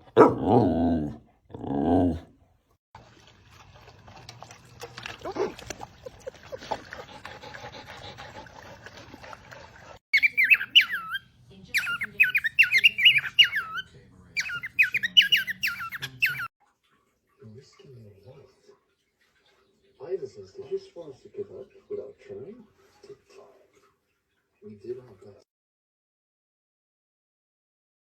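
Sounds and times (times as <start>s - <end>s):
small animal squeaking: 10.2s - 11.2s, 11.8s - 16.5s.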